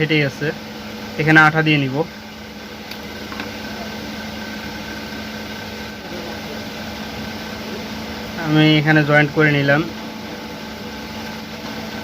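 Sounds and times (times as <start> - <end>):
room hum with faint whine: 0.0 - 12.0.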